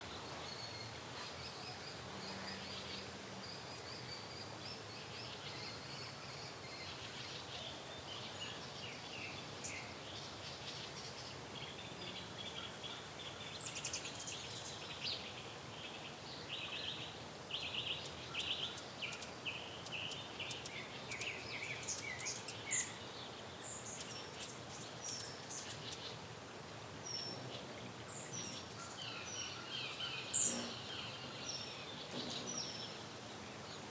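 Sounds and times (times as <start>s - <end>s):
faint steady hiss: 0.0s - 33.9s
small birds chirping: 27.0s - 33.9s.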